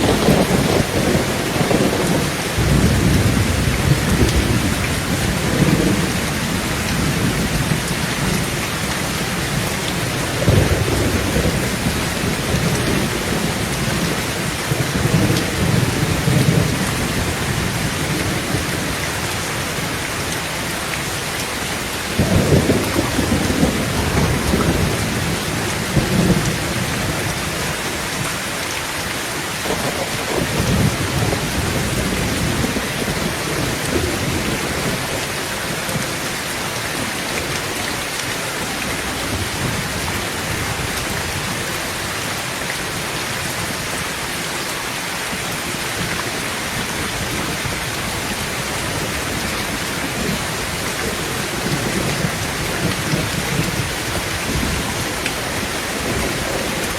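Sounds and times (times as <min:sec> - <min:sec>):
thunder rumbling: 0:00.0 - 0:20.0, 0:22.1 - 0:28.3, 0:29.6 - 0:36.2, 0:46.8 - 0:56.9
heavy rain on a tin roof: 0:00.0 - 0:56.9.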